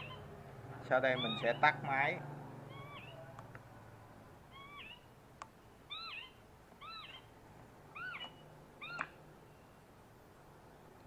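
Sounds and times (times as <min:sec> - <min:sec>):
recorded animal call from speaker: 0:00.9 - 0:03.3.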